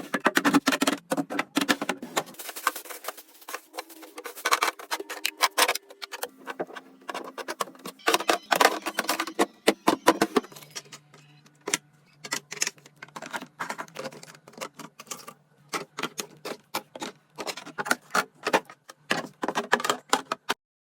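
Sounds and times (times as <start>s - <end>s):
plastic containers clicking and rustling: 0.0s - 20.6s.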